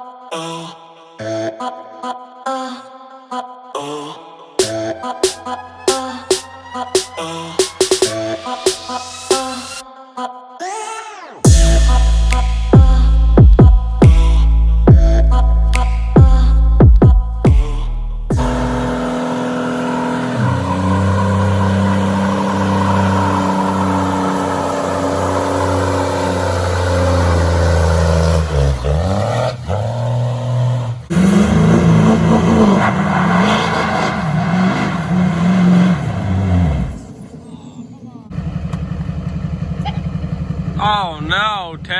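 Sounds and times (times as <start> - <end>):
diesel truck engine revving: 11.5 - 41.9.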